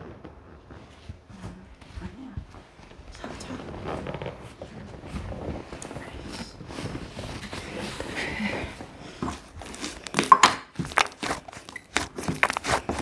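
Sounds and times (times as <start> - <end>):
slime squeezed by hand: 9.4 - 13.0.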